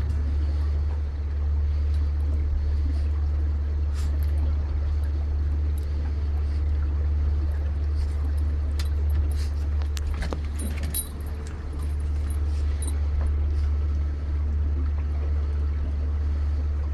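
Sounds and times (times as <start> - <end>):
boat engine rumble: 0.0 - 16.9
light clicks and jingles: 7.9 - 13.7.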